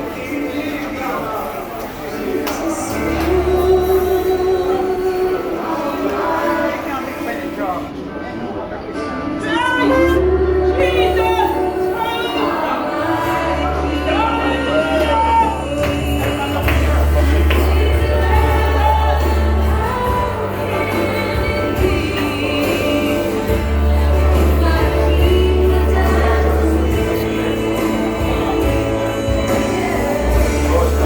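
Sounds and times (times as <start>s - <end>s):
gospel singing: 0.0s - 7.9s, 9.4s - 31.0s
held bass notes: 9.5s - 12.0s.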